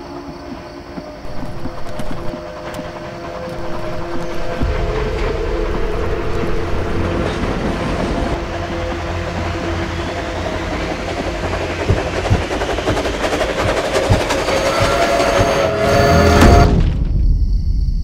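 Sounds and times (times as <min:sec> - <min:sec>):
train rumbling and rattling: 0:00.0 - 0:17.3
heavy knocks: 0:01.2 - 0:08.4, 0:11.5 - 0:16.7.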